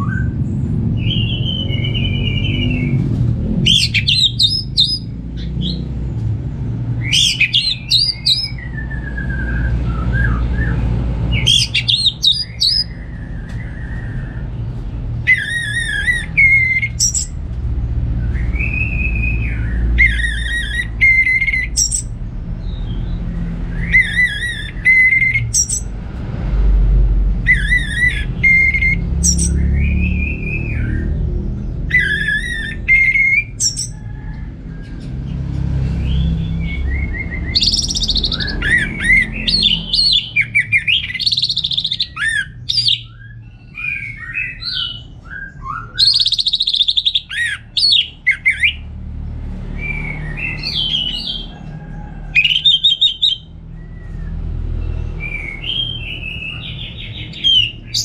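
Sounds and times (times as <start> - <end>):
steady low rumble: 0.0 - 46.2
thrush singing: 35.4 - 49.0.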